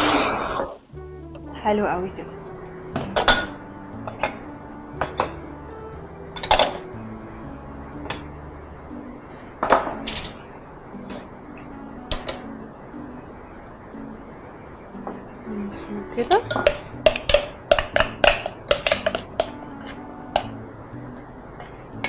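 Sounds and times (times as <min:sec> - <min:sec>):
soft background music: 0:00.0 - 0:22.0
utensils clinking against dishes: 0:03.0 - 0:05.4, 0:06.3 - 0:06.9, 0:09.6 - 0:10.5, 0:16.2 - 0:20.6.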